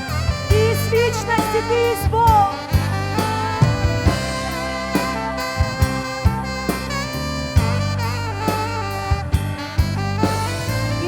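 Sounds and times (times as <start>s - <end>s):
band playing instrumental: 0.0s - 11.0s
sharp drum hits: 2.9s - 8.8s.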